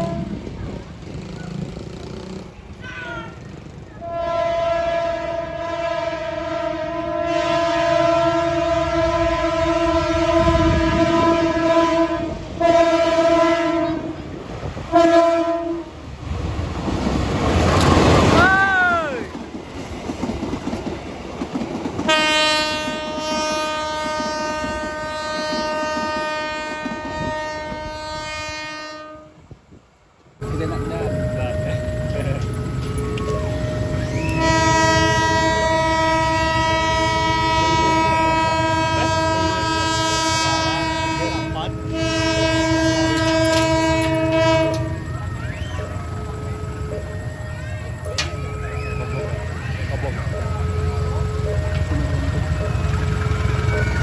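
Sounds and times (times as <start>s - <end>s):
locomotive horn blasts: 0.0s - 0.6s, 4.0s - 14.2s, 14.9s - 16.0s, 22.0s - 29.6s, 30.4s - 47.0s
train rumble: 0.0s - 54.0s.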